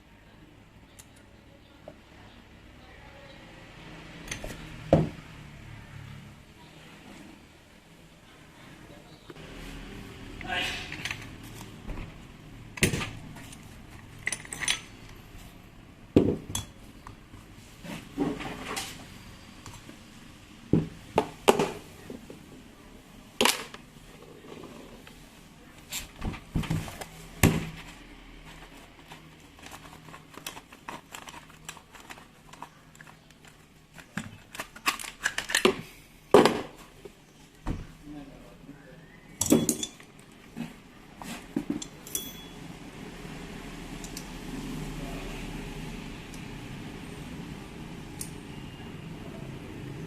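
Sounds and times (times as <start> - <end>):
metal tools clinking on workbench: 12.8 - 15.2, 39.4 - 40.1, 41.7 - 42.6.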